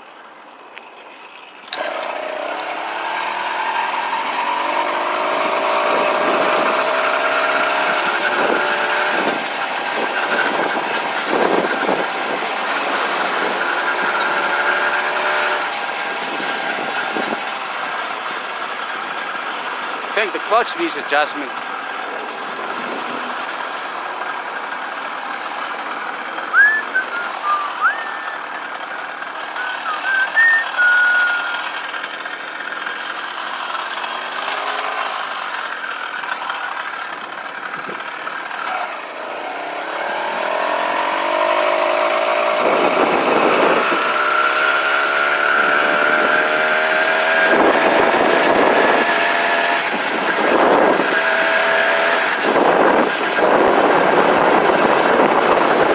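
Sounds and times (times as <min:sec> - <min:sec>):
motorized bicycle engine running: 0:01.6 - 0:14.9, 0:31.5 - 0:44.3
short high squeaks: 0:26.6 - 0:28.8, 0:29.5 - 0:31.8
wind rushing over microphone: 0:52.4 - 0:55.9.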